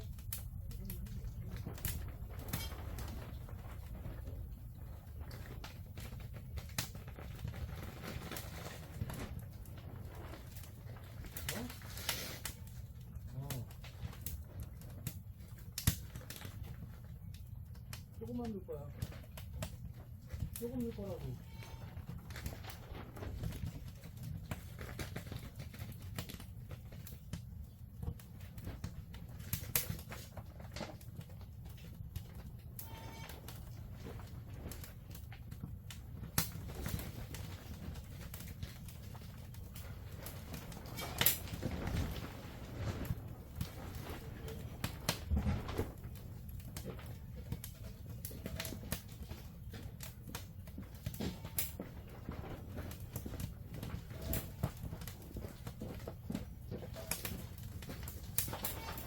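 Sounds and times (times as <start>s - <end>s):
low steady rumble: 0.0s - 7.3s
wood fire crackling and popping: 0.0s - 59.0s.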